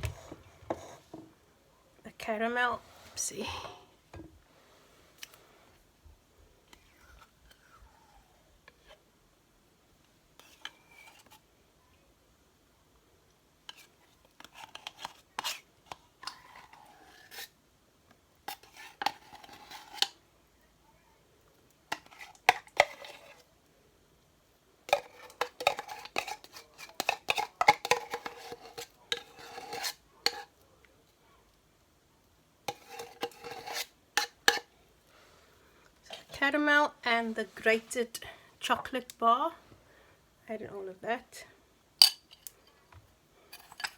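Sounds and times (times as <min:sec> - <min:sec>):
spoon scraping and clinking on tin: 0:18.5 - 0:20.2, 0:21.9 - 0:23.4, 0:24.9 - 0:30.5, 0:32.7 - 0:34.7, 0:42.0 - 0:42.5, 0:43.5 - 0:43.9.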